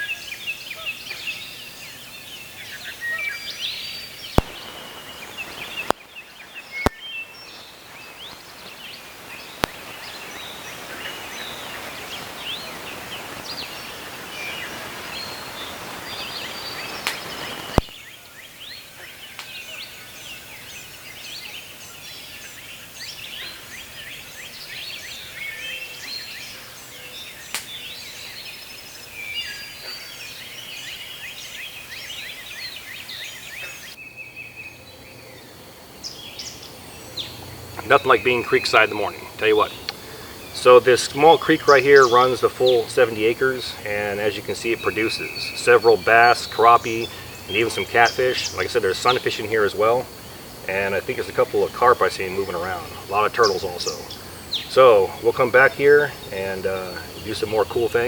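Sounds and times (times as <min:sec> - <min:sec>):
birds chirping and calling: 0:00.0 - 0:58.0
creek water rushing: 0:04.2 - 0:18.0, 0:35.6 - 0:58.0
sharp clicks: 0:04.4 - 0:06.0, 0:09.6 - 0:09.9.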